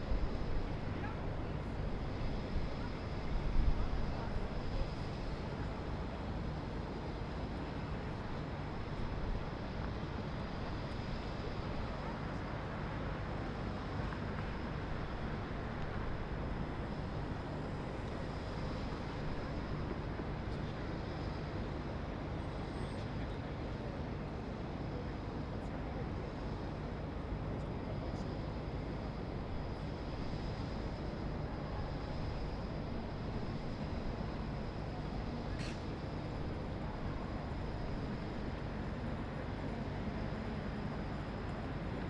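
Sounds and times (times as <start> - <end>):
faint high whine: 0.0 - 42.0
city traffic noise: 32.5 - 42.0.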